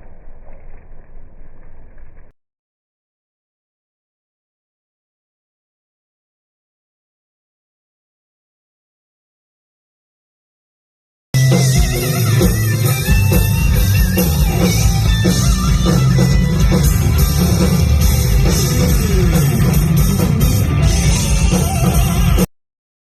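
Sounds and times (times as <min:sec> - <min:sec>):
loud rock music: 0:11.4 - 0:22.5.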